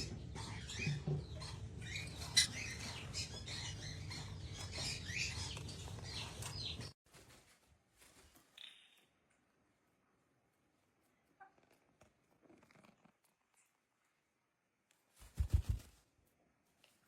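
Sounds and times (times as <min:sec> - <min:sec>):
parrot chirping and squawking: 0:00.0 - 0:06.8.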